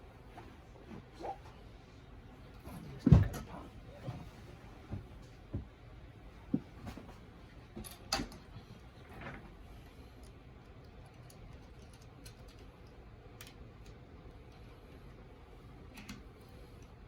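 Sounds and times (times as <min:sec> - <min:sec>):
plastic parts clicking together: 0:10.8 - 0:14.6.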